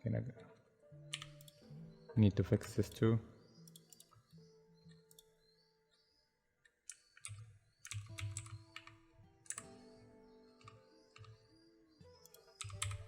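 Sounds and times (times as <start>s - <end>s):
soft background music: 0.0s - 13.0s
computer keyboard typing: 1.1s - 1.6s, 6.9s - 9.8s, 12.2s - 13.0s.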